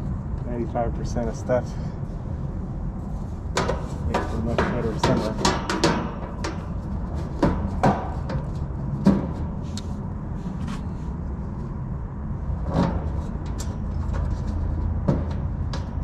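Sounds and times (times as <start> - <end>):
air conditioner unit humming: 0.0 - 16.0
sharp knocks and clicks: 3.5 - 9.5, 12.7 - 16.0.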